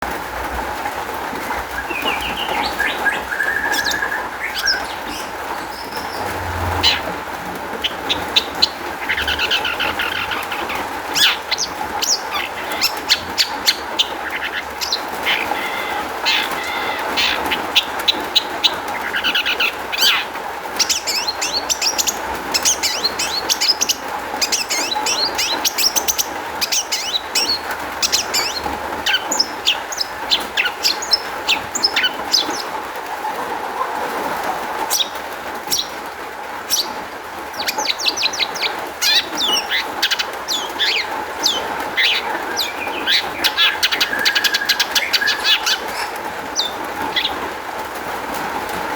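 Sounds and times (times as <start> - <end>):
shrike singing: 7.8 - 20.2.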